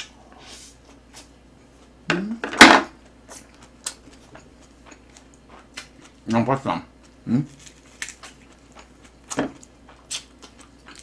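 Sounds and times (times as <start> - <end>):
person chewing: 3.0 - 6.2, 7.0 - 11.0.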